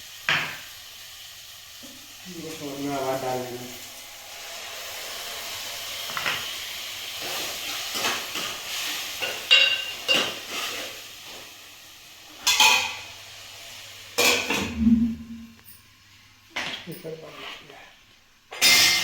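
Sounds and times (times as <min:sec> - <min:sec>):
food sizzling in a pan: 0:00.0 - 0:14.8, 0:15.4 - 0:19.0
spoon scraping a pan: 0:07.1 - 0:11.0.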